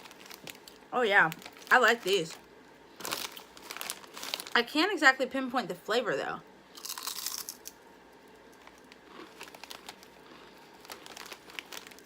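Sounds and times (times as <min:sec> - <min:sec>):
chip bag crinkling: 0:00.0 - 0:04.8, 0:06.8 - 0:07.8, 0:08.4 - 0:12.0.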